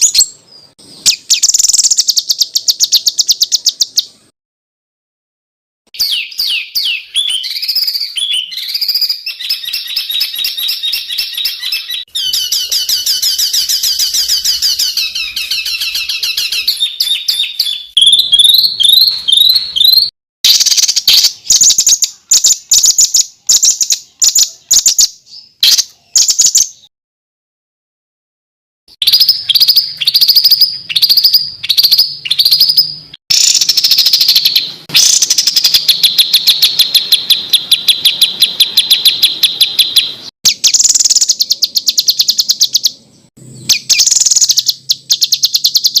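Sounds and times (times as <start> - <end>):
songbird harsh trills and chattering: 6.0 - 26.8, 29.0 - 46.0.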